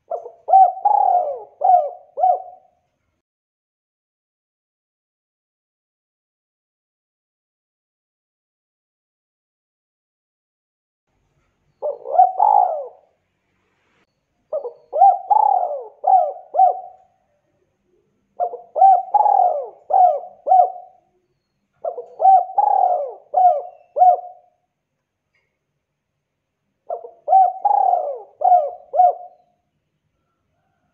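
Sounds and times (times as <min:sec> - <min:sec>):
dove cooing: 0:00.0 - 0:02.8, 0:11.8 - 0:13.2, 0:14.5 - 0:17.3, 0:17.9 - 0:24.6, 0:26.9 - 0:29.6.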